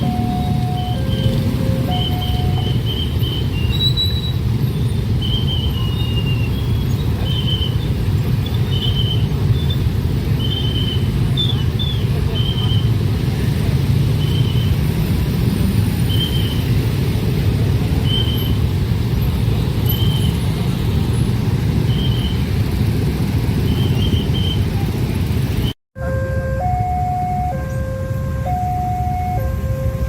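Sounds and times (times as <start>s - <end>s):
short high beeps: 0.0s - 3.0s
two-tone crossing alarm: 0.0s - 3.5s, 26.0s - 30.0s
train rumbling: 0.0s - 30.0s.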